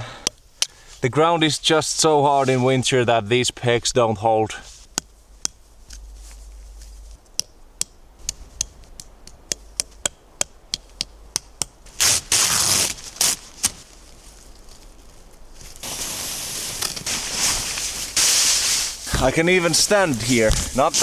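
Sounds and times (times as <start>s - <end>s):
scraping rustle: 4.6s - 7.4s, 11.9s - 21.0s.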